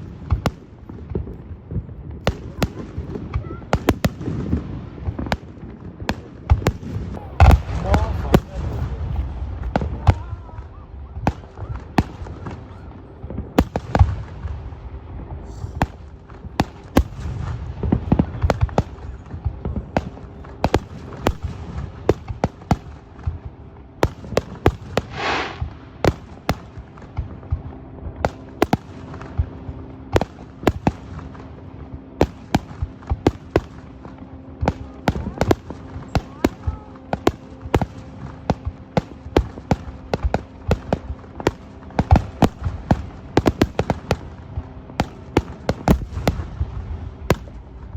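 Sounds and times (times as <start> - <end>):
fireworks bangs and pops: 0.0 - 10.6, 15.6 - 47.9
low rumble: 6.9 - 22.1
brief hiss: 25.1 - 25.6.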